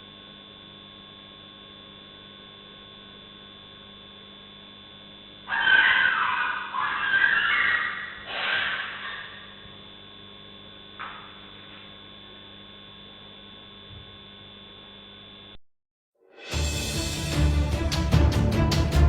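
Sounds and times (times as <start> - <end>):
electrical hum: 0.0 - 15.6
harsh cries: 5.5 - 9.5.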